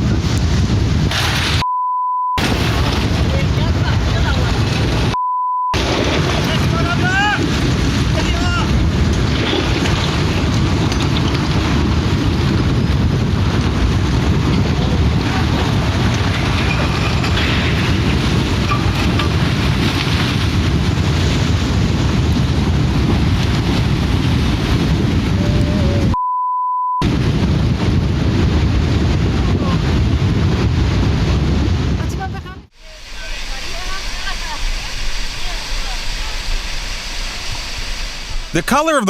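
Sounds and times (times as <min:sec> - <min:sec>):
censor bleep: 0:01.6 - 0:02.4, 0:05.1 - 0:05.8, 0:26.1 - 0:27.0.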